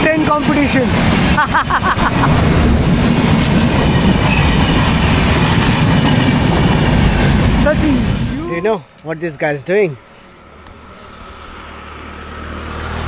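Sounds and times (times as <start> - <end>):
train rumbling past: 0.0 - 9.6.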